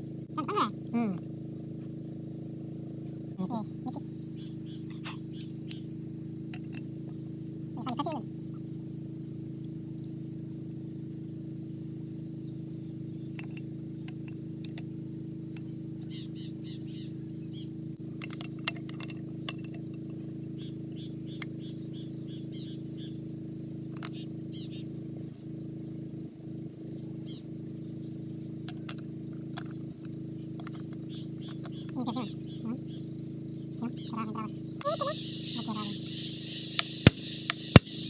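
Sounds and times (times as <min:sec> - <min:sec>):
low mechanical hum: 0:00.0 - 0:38.0
small birds chirping: 0:03.4 - 0:06.0, 0:15.6 - 0:17.8, 0:20.6 - 0:23.2, 0:23.9 - 0:25.4, 0:30.3 - 0:38.0
sharp clicks: 0:35.5 - 0:38.0.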